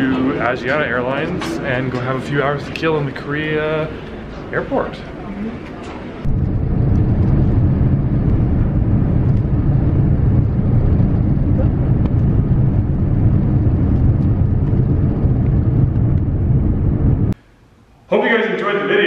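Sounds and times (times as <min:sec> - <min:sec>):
moving vehicle rumble: 0:05.2 - 0:17.4.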